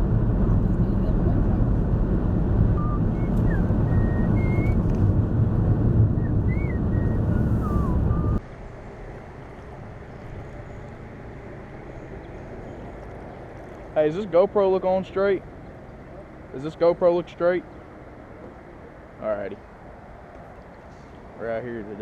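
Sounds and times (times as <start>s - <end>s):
loud outdoor rumbling: 0.0s - 17.0s
short whistled chirps: 2.8s - 4.8s.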